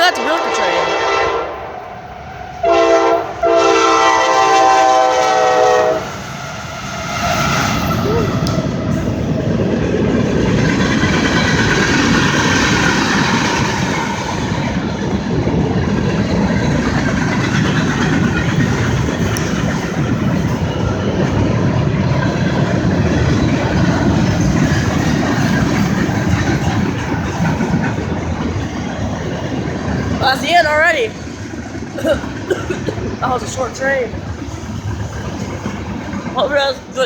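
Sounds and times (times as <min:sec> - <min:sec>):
train wheels on rails: 0:00.0 - 0:37.0.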